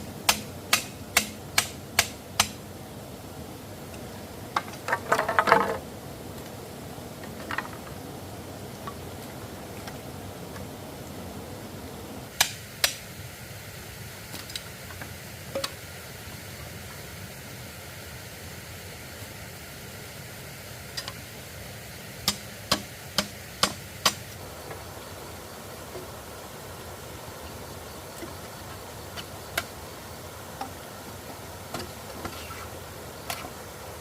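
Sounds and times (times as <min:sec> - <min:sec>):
steady background hiss: 0:00.0 - 0:34.0.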